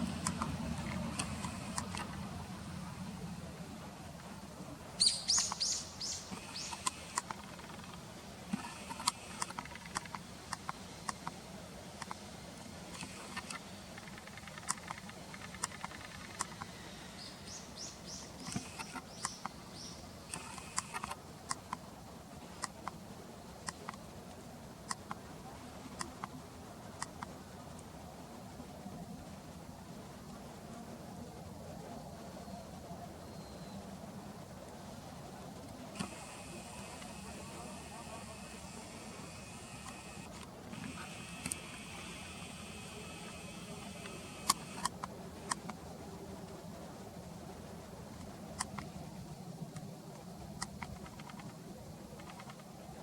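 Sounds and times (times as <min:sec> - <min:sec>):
bird chirping: 0:05.0 - 0:07.9, 0:17.1 - 0:20.6
short sharp bird ticks: 0:05.0 - 0:08.0, 0:13.0 - 0:21.1.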